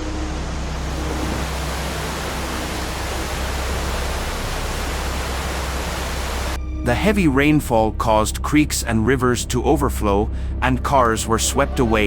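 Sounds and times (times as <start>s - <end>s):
floodwater rushing: 0.6s - 6.6s.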